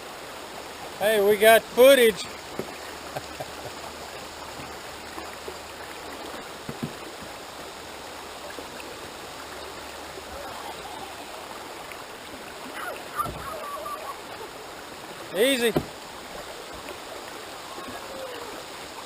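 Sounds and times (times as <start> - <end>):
river water rushing: 0.0 - 19.0
short knocks: 15.6 - 16.0.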